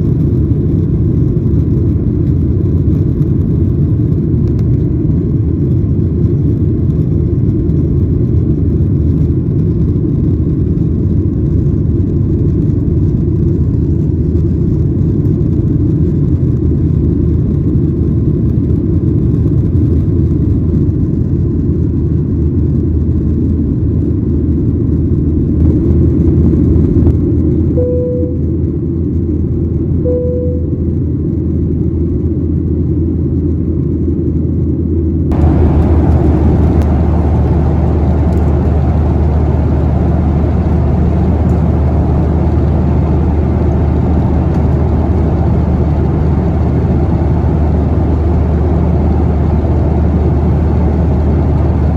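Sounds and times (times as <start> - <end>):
airliner cabin engine rumble: 0.0 - 51.9
short chime tones: 27.8 - 28.6, 30.1 - 30.9.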